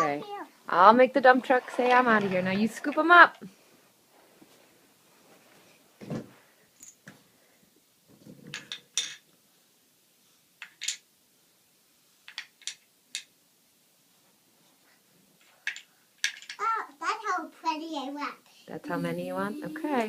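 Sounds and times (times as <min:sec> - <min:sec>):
pencils clicking and clattering: 0:01.3 - 0:03.4, 0:08.4 - 0:09.2, 0:10.6 - 0:11.0, 0:12.2 - 0:13.3, 0:15.4 - 0:16.7.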